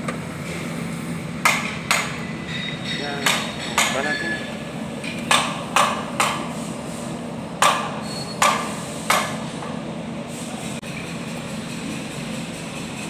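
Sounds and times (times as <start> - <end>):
hammer striking metal: 1.4 - 6.5, 7.6 - 9.4.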